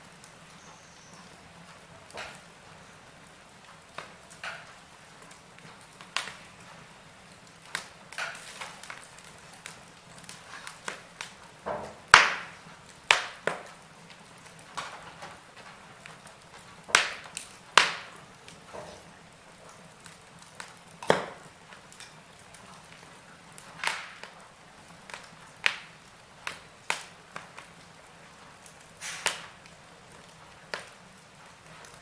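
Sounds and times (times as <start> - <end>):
wood fire crackling and popping: 0.0 - 32.0
faint hiss: 15.3 - 32.0.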